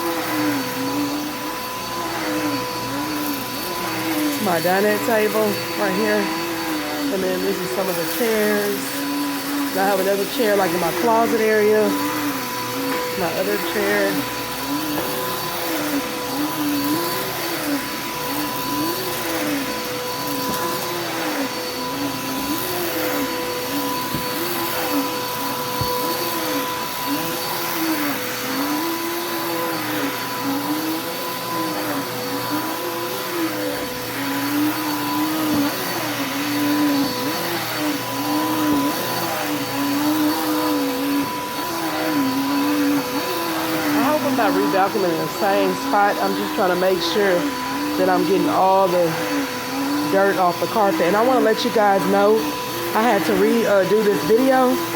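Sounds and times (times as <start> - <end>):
vacuum cleaner on carpet: 0.0 - 54.9.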